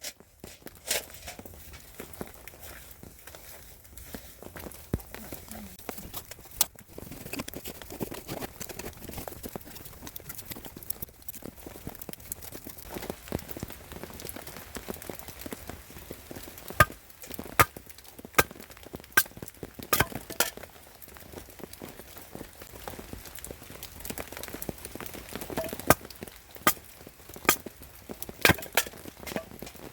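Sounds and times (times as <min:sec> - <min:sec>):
axe chopping firewood: 0:16.8 - 0:17.0, 0:17.6 - 0:17.8, 0:18.4 - 0:18.6, 0:19.9 - 0:20.6, 0:25.6 - 0:26.1, 0:26.7 - 0:26.9, 0:28.5 - 0:29.6.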